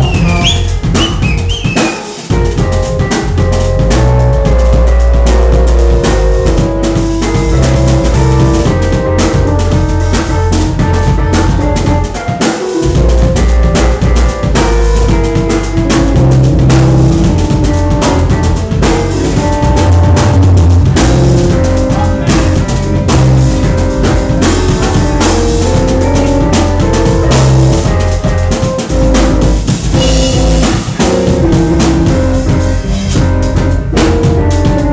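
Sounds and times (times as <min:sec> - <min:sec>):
bass notes: 0:00.0 - 0:34.9
drum kit beat: 0:00.0 - 0:34.9
loud music: 0:00.0 - 0:34.9.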